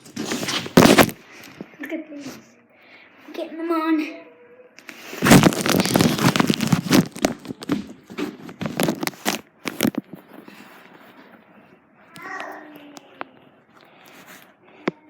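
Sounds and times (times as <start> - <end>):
plastic bag crinkling: 0.0 - 1.2, 5.0 - 10.3.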